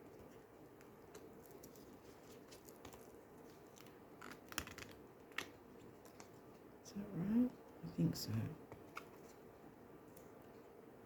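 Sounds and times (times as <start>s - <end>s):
faint room hiss: 0.0s - 11.0s
cards tapping and clicking: 3.8s - 6.3s.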